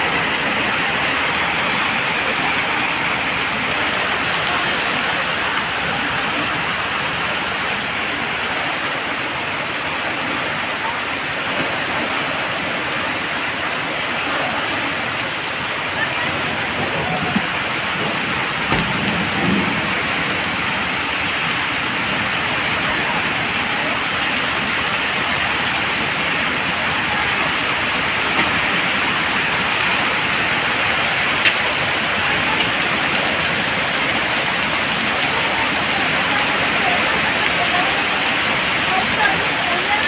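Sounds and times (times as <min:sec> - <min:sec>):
rain hissing: 0:00.0 - 0:40.0
raindrop ticks: 0:15.0 - 0:40.0.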